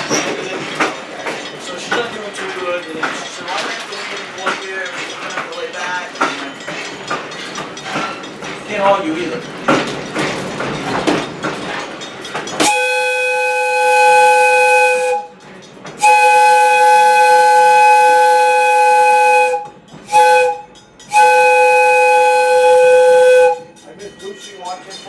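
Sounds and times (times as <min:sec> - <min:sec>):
train running noise: 0:00.0 - 0:25.0
steam locomotive whistle: 0:12.6 - 0:15.4, 0:16.0 - 0:23.7.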